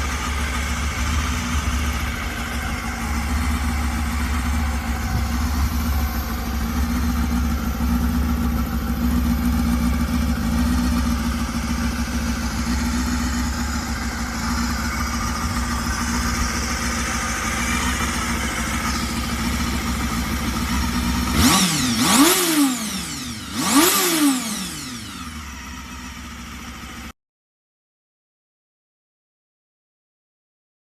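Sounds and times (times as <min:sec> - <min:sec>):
motorcycle engine idling and revving: 0:00.0 - 0:27.2.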